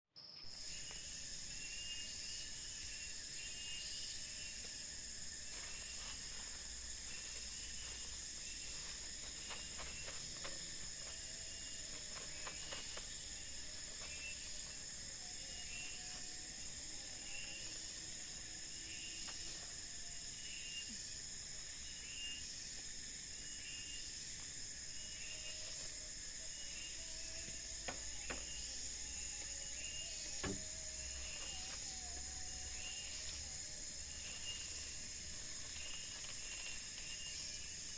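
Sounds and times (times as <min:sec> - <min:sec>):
insects droning: 0:00.2 - 0:37.9.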